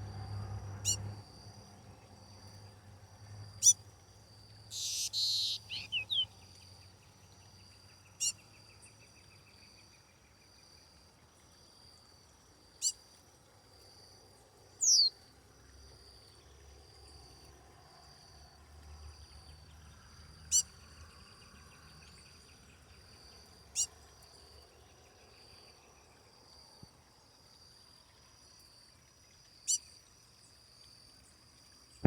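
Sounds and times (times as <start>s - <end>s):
insects chirring: 0.0s - 32.0s
sharp downward-sweeping calls: 4.8s - 6.2s.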